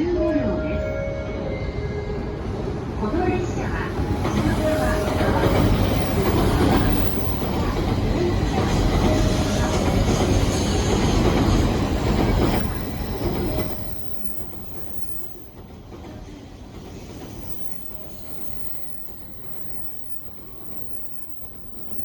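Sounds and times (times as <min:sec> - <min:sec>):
train rumbling past on rails: 0:00.0 - 0:22.0.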